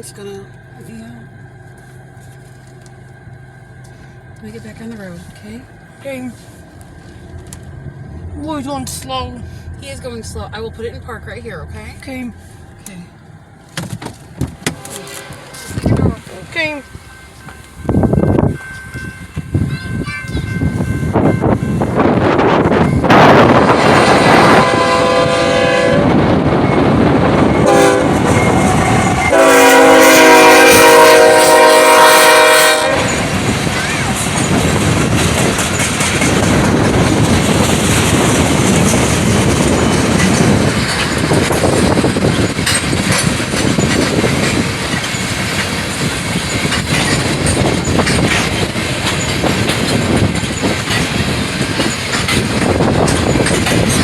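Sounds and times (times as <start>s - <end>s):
train rumbling past: 0.0s - 54.0s
wheels clacking over rail joints: 0.0s - 54.0s
locomotive air horn blasts: 14.7s - 16.6s, 23.1s - 26.5s, 27.6s - 33.4s.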